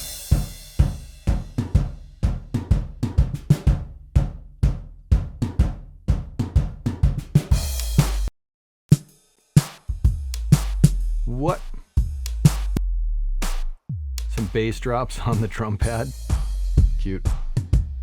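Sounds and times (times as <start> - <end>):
acoustic drum kit groove: 0.0 - 8.3, 8.9 - 12.8, 13.4 - 18.0
held low boom: 10.1 - 17.9
crash cymbal: 16.0 - 17.0.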